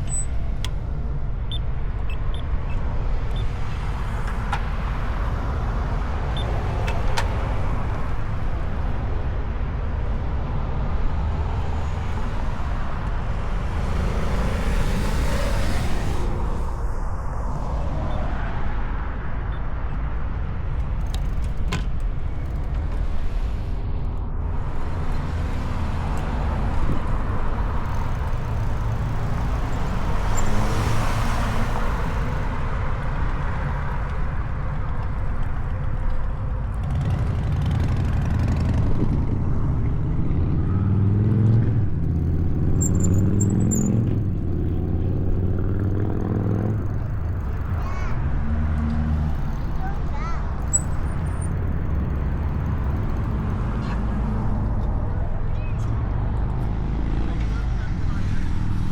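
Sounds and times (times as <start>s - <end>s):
low traffic rumble: 0.0s - 58.9s
vehicle passing: 11.2s - 19.1s, 36.8s - 58.9s
engines accelerating: 11.2s - 20.3s, 22.6s - 34.5s, 36.4s - 58.9s.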